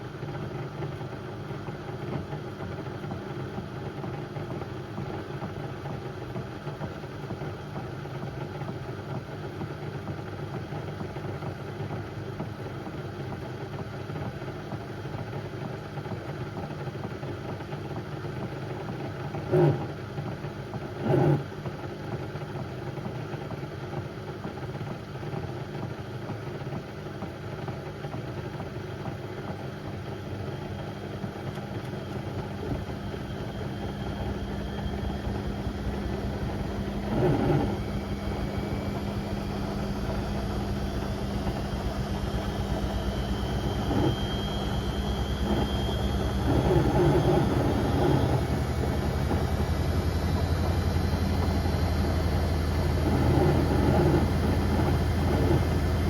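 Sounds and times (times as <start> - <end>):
washing machine motor and drum hum: 0.0 - 56.0
faint high whine: 32.6 - 56.0.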